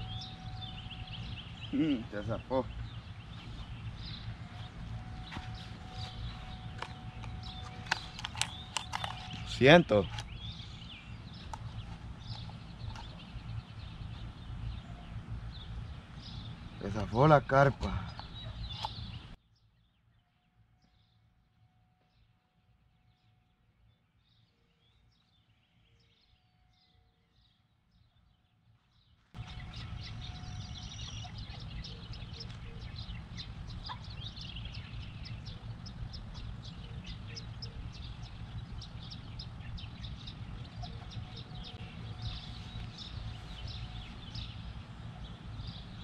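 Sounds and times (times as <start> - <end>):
low outdoor rumble: 0.0 - 19.4, 29.3 - 46.0
small birds chirping and singing: 0.0 - 21.2, 23.0 - 46.0.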